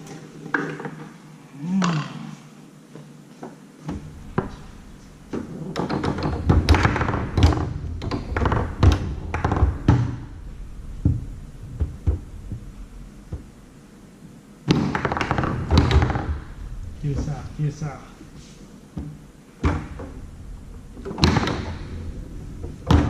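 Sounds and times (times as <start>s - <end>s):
foosball ball and rods knocking: 0.0s - 1.2s, 3.4s - 13.6s, 14.6s - 17.3s, 18.9s - 20.3s, 21.0s - 23.0s
foosball clicks: 5.3s - 10.3s.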